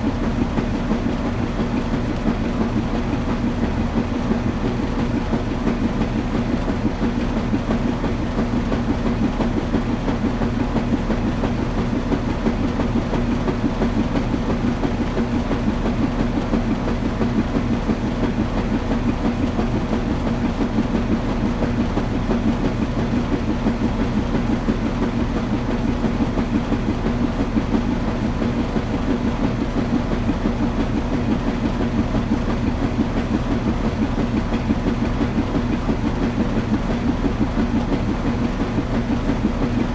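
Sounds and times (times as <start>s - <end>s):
washing machine running: 0.0s - 39.9s.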